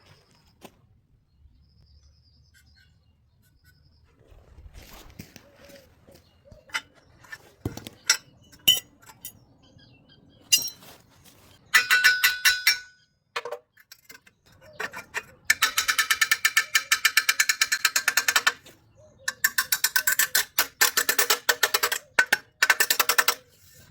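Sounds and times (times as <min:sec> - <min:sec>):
metal striking metal: 0:11.7 - 0:13.1
rapid ringing metal taps: 0:11.7 - 0:13.6, 0:15.4 - 0:23.4.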